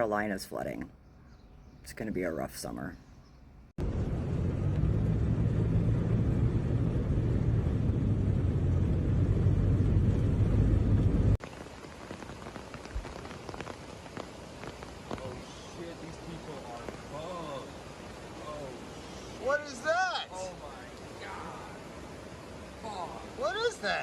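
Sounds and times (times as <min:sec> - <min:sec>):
light outdoor rain: 0:03.8 - 0:24.0
heavy rain pouring: 0:07.7 - 0:24.0.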